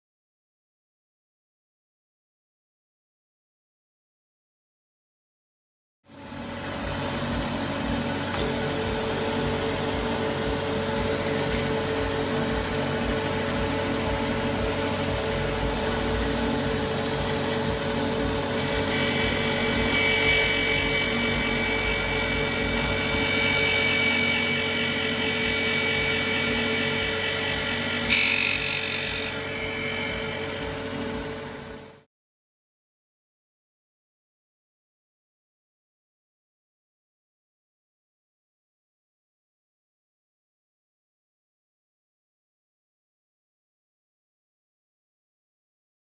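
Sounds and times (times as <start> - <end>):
power tool running: 6.2 - 32.0
high-pitched whine: 6.2 - 32.1.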